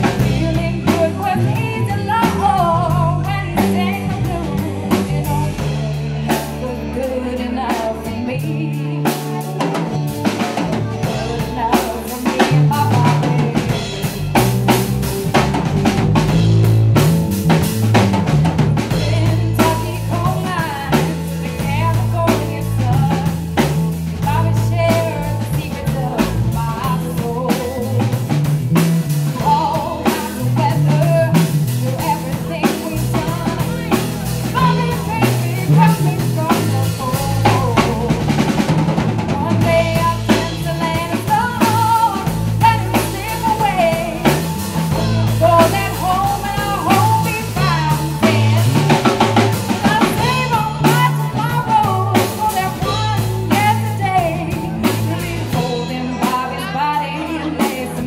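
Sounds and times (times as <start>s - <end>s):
bass line: 0.0s - 58.0s
drum kit: 0.0s - 58.0s
woman singing lead: 0.0s - 58.0s.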